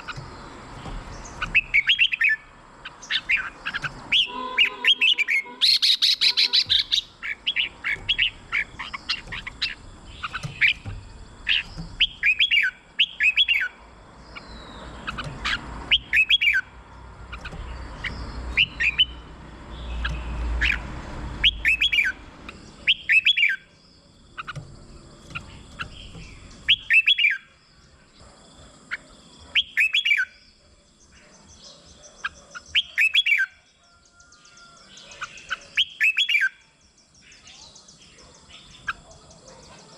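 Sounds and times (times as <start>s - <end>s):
bird singing whistled phrases: 26.7s - 27.5s.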